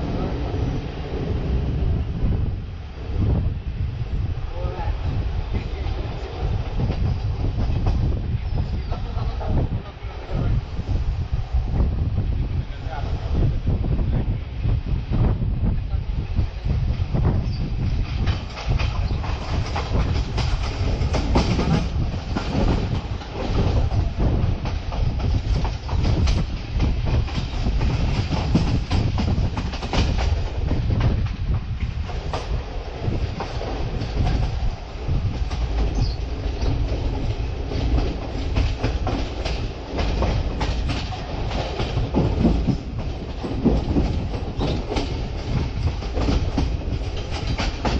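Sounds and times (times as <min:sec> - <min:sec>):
train low rumble: 0:00.0 - 0:47.9
wheels clacking over rail joints: 0:18.0 - 0:47.9.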